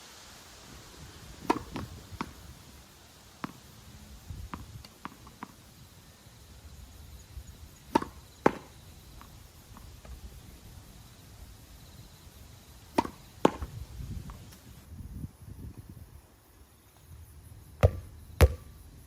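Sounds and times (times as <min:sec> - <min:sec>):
racket striking tennis ball: 0:01.4 - 0:02.5, 0:03.4 - 0:03.7, 0:04.4 - 0:05.6, 0:07.8 - 0:10.2, 0:12.9 - 0:14.6, 0:17.8 - 0:18.6
tennis ball bouncing: 0:01.4 - 0:02.6, 0:03.4 - 0:03.7, 0:04.4 - 0:05.6, 0:07.8 - 0:10.2, 0:12.9 - 0:14.6, 0:17.8 - 0:18.6.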